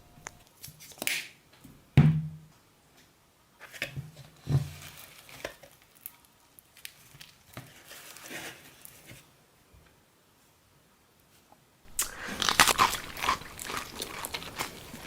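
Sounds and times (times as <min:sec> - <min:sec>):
soft rustles and stirring: 0:03.6 - 0:09.3, 0:11.3 - 0:15.0.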